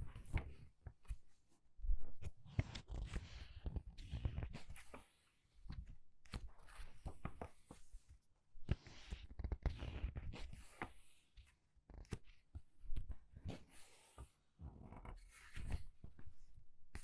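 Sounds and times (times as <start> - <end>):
book pages turning: 0.2 - 1.2, 2.5 - 7.8, 14.9 - 16.2.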